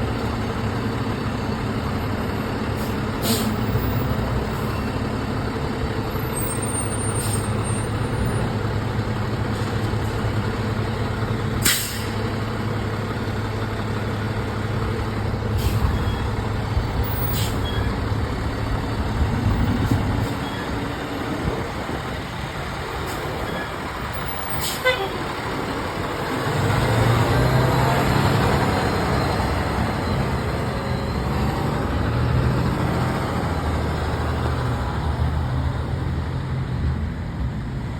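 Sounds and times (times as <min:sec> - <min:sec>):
fire truck engine running: 0:00.0 - 0:37.9
air brake hisses: 0:02.8 - 0:03.6, 0:11.6 - 0:12.2, 0:15.6 - 0:16.0, 0:17.3 - 0:17.6, 0:24.6 - 0:25.0.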